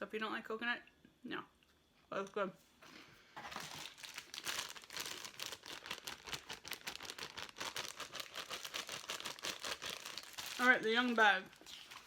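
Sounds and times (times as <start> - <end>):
plastic packaging crinkling: 3.4 - 12.0.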